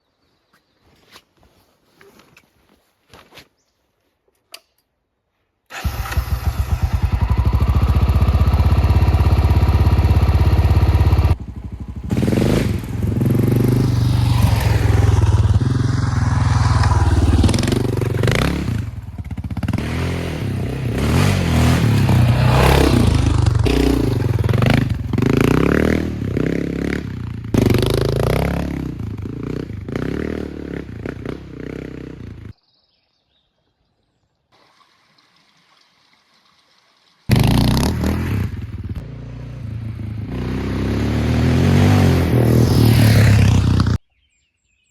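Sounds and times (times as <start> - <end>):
motorcycle engine revving: 5.7 - 32.5, 37.3 - 44.0.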